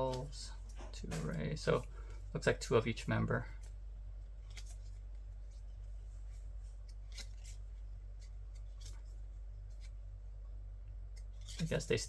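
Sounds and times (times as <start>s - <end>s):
steady low hum: 0.0s - 12.0s
cards clicking and sliding: 4.4s - 5.2s, 6.8s - 7.6s, 8.2s - 10.0s.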